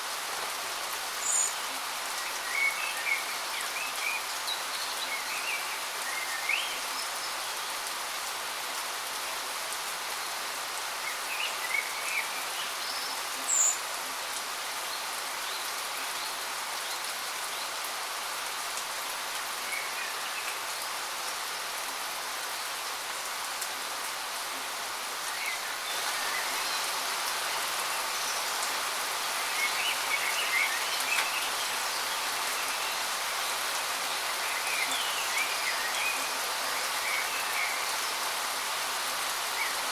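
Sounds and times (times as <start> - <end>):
waterfall rushing: 25.3 - 39.9.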